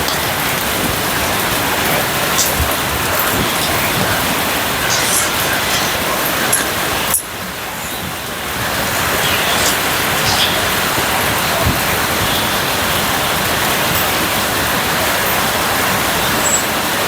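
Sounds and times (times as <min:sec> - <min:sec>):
steady rain hiss: 0:00.0 - 0:17.0
faint drop ticks: 0:09.2 - 0:10.9.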